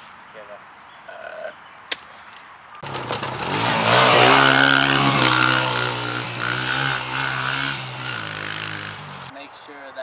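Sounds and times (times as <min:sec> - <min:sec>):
small motorcycle engine revving: 0:02.8 - 0:09.3.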